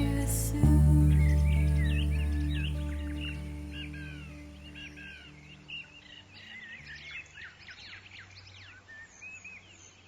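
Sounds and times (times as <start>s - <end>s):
low music notes: 0.0s - 6.0s.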